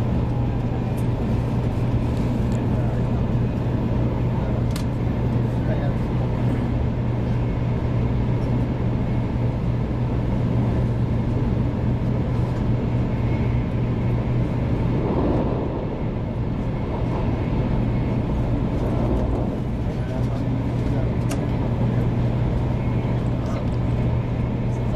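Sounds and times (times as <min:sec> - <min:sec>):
train cabin rumble: 0:13.6 - 0:24.2.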